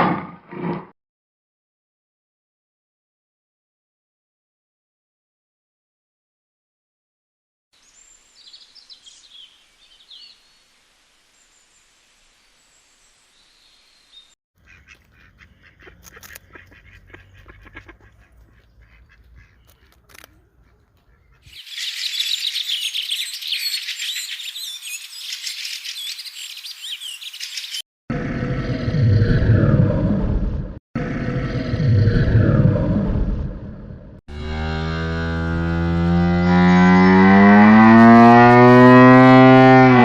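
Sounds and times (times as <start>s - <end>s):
birds chirping: 7.8s - 10.8s, 12.5s - 27.8s
chorus of many birds: 14.0s - 27.8s.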